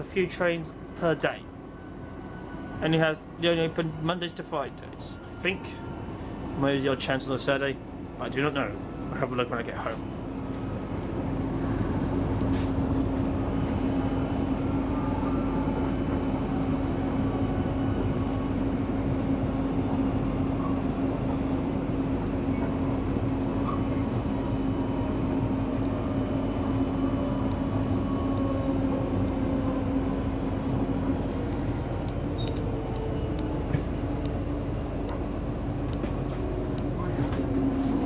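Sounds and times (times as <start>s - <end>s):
constant train hum: 0.0s - 38.0s
train wheels rumbling on rails: 9.9s - 38.0s.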